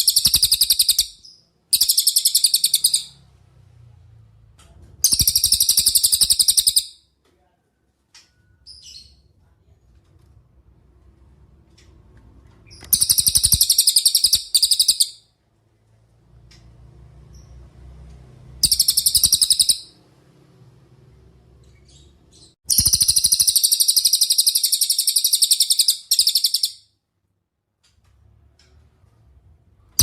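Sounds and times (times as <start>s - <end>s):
songbird trilling: 0.0s - 3.2s, 5.1s - 6.9s, 12.8s - 15.2s, 18.6s - 19.9s, 22.7s - 26.8s.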